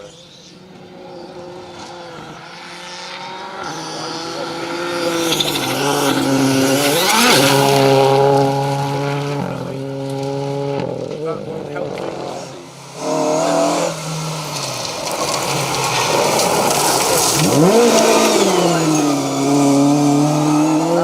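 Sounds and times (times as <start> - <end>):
rally car engine at full effort: 0.0 - 21.0.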